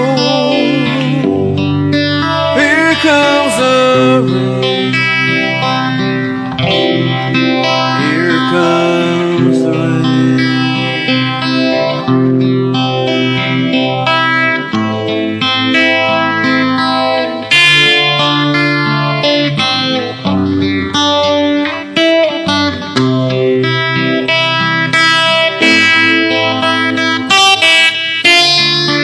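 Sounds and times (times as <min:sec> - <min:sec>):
pop ballad backing music: 0:00.0 - 0:14.7
electric guitar melody: 0:00.0 - 0:29.0.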